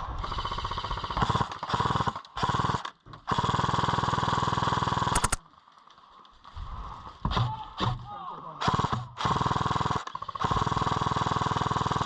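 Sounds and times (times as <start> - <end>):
airsoft gun automatic fire: 5.1 - 5.4
sharp clicks: 5.1 - 5.4.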